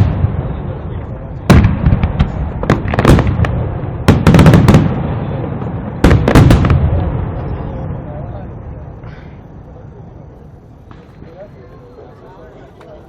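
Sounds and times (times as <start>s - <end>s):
fireworks bursting: 0.0s - 11.6s.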